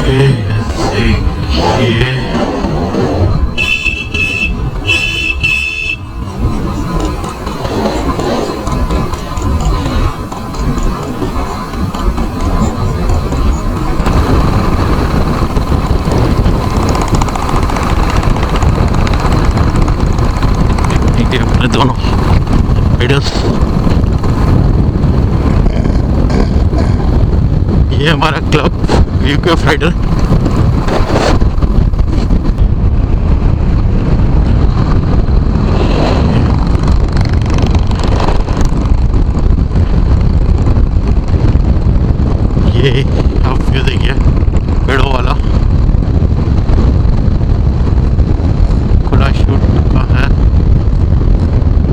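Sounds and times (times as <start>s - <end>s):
motorcycle engine running: 0.0s - 51.9s
wind rushing over microphone: 0.0s - 51.9s.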